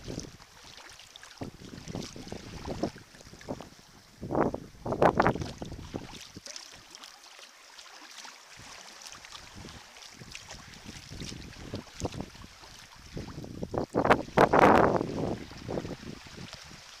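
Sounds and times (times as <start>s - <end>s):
paddle splashing in water: 0.0s - 17.0s
water lapping: 0.0s - 17.0s
wind buffeting microphone: 1.4s - 6.4s, 9.4s - 16.9s.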